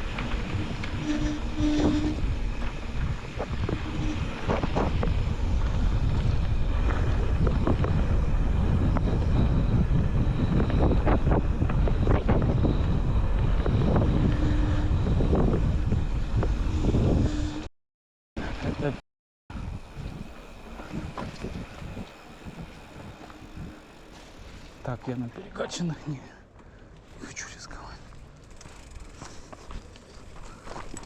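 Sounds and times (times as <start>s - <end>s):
low rumble of riding: 0.0s - 17.6s, 19.5s - 25.7s, 26.5s - 31.0s
wind buffeting microphone: 0.0s - 17.6s, 19.5s - 25.3s.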